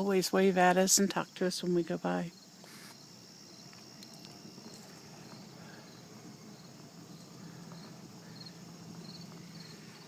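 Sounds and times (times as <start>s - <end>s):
faint low hum: 0.0s - 10.0s
insects trilling: 0.0s - 10.0s
short insect chirps: 2.3s - 10.0s.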